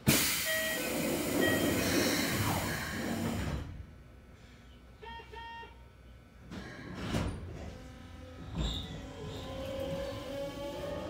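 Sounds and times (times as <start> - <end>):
low background hum: 2.3 - 9.8.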